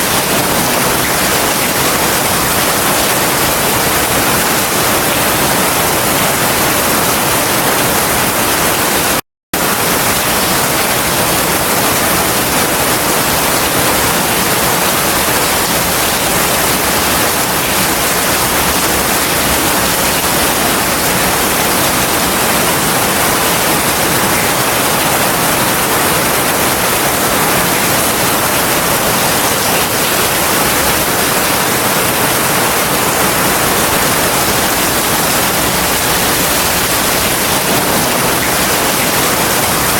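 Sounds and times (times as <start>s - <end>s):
heavy rain hissing: 13.3s - 39.9s.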